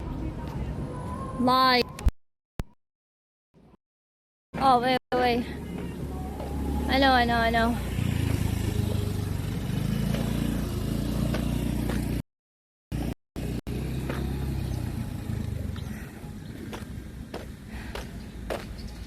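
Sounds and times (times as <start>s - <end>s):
vehicle engine rumbling: 12.9s - 19.0s.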